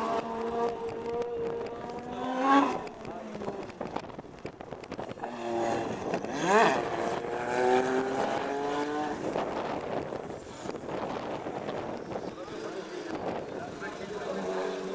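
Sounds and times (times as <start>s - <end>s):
racing car engine passing: 5.2s - 10.0s.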